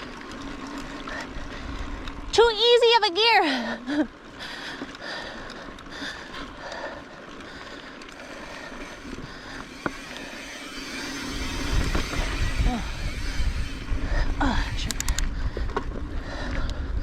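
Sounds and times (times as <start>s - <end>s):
bike rattles and ticks: 0.0s - 17.0s
bike tyres on dirt trail: 0.0s - 17.0s
wind rumble on microphone: 11.3s - 17.0s.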